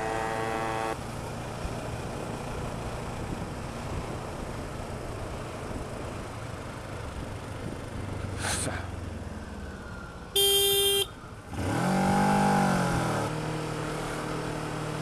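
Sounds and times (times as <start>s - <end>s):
buzzing moped engine: 0.0s - 2.0s, 10.4s - 15.0s
wind and road rumble: 0.0s - 15.0s.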